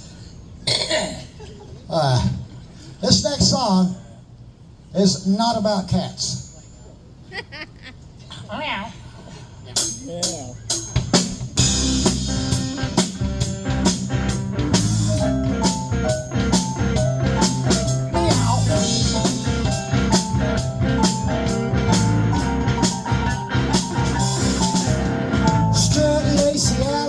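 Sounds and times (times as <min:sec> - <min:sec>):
drum kit beat: 0:09.8 - 0:27.0
guitar: 0:11.0 - 0:27.0
low bass line: 0:11.6 - 0:27.0.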